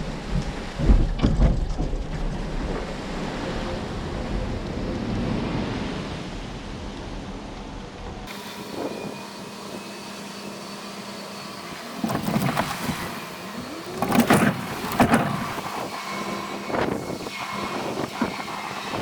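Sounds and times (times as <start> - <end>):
motor hum: 8.3 - 19.0
load knocking and rattling: 12.0 - 15.8.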